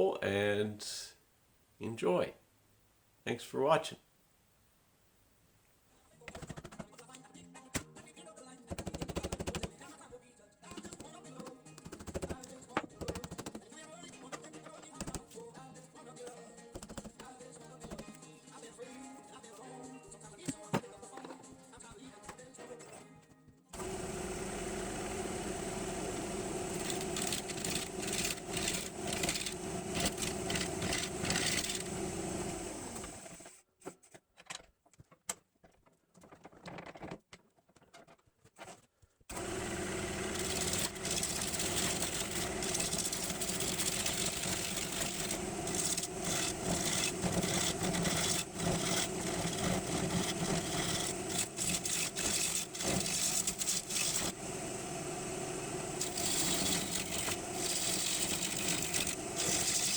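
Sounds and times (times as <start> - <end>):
woodworking machine motor hum: 23.8 - 33.5, 39.3 - 59.9
small handling noises: 32.9 - 39.3.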